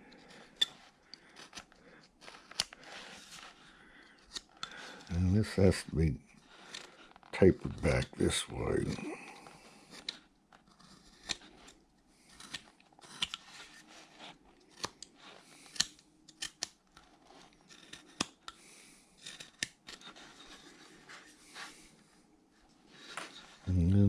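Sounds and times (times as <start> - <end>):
knife carving wood: 0.1 - 5.6, 6.3 - 22.0.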